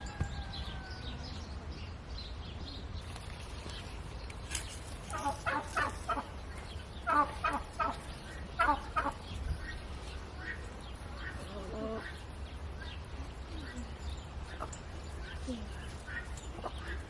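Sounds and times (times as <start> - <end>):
poultry calling: 5.0 - 6.4, 7.0 - 12.3.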